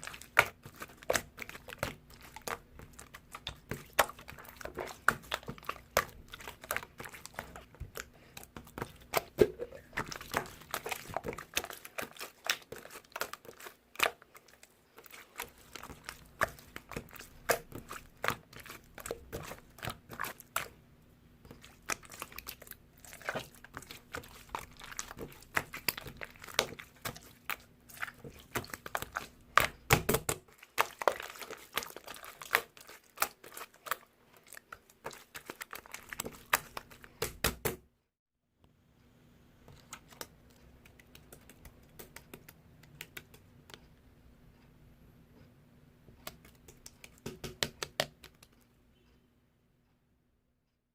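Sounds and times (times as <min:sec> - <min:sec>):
slime squishing and popping: 0:21.5 - 0:34.0.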